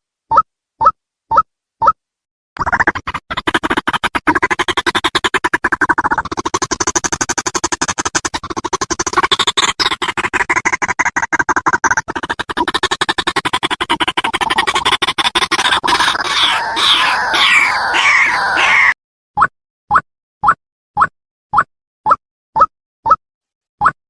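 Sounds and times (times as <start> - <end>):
bird calling in rapid harsh pulses: 15.6 - 19.0.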